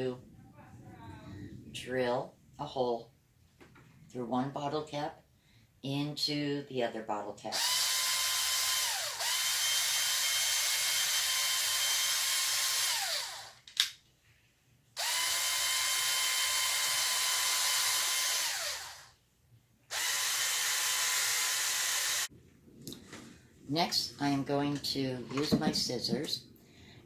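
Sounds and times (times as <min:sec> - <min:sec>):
electric drill whining: 0:07.5 - 0:13.6, 0:15.0 - 0:19.2, 0:19.9 - 0:22.3.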